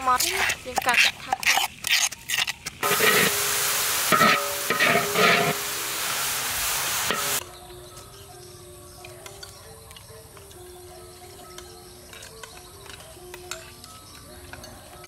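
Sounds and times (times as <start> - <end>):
fish sizzling in a metal pan: 0.1 - 7.4
metal spoon stirring: 0.2 - 7.4.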